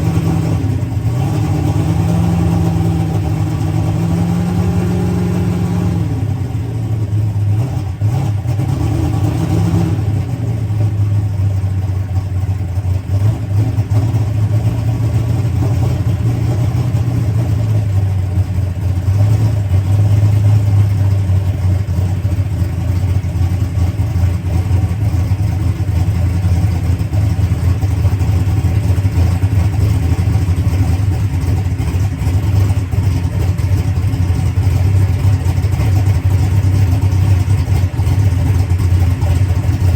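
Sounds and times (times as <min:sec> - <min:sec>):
race car engine idling: 0:00.0 - 0:39.9.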